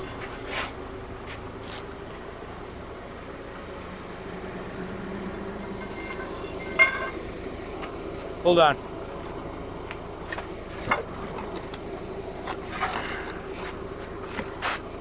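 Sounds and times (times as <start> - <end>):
forklift engine running: 0.0 - 15.0.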